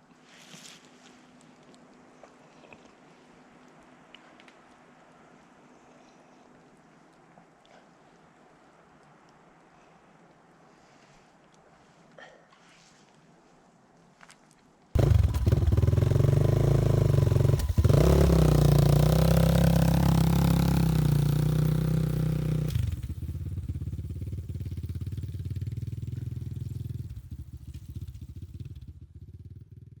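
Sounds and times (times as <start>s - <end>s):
motorcycle engine running: 15.0s - 30.0s.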